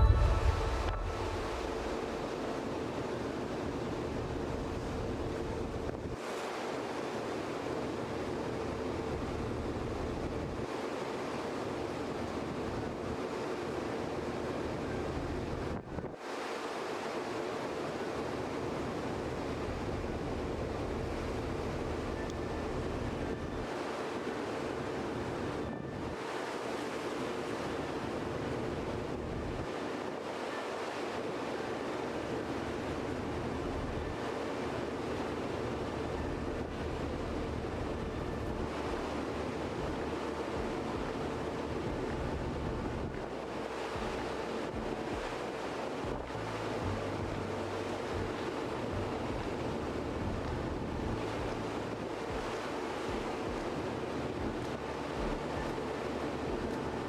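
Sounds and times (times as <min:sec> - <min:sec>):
low hum: 0:00.0 - 0:02.8, 0:36.1 - 0:57.0
wind and sea rushing: 0:00.0 - 0:57.0.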